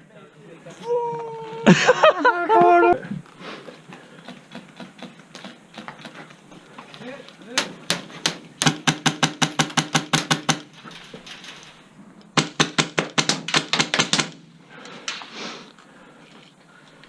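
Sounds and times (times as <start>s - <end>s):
airsoft gun firing: 7.6s - 10.8s, 12.4s - 14.5s.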